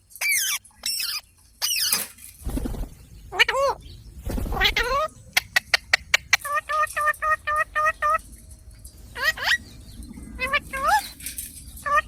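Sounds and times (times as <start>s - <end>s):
parrot squawks: 0.2s - 2.0s, 10.4s - 11.2s
parrot calling: 0.2s - 2.1s, 3.3s - 3.9s, 4.6s - 8.2s, 9.1s - 9.6s, 10.4s - 11.2s, 11.8s - 12.0s.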